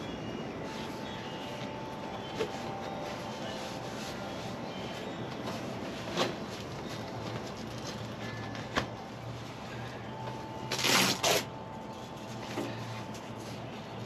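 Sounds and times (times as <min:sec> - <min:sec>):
faint steady hum: 0:00.0 - 0:14.0
velcro tab ripping: 0:10.7 - 0:11.5.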